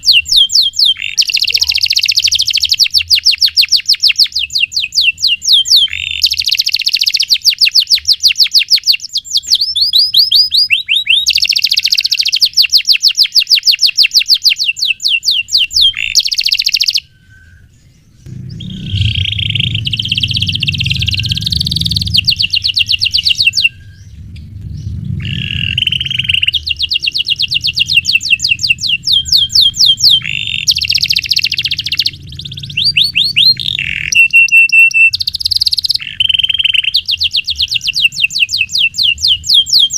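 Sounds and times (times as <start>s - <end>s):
canary singing trills: 0.0s - 39.9s
low rumble: 17.2s - 34.5s.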